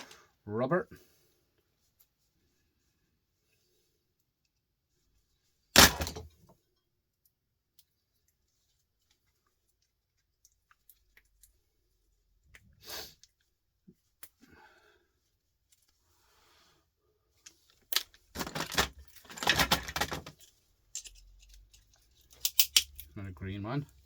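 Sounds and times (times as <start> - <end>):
metal parts clicking: 17.4 - 23.2
loose metal pieces clattering: 17.9 - 23.2.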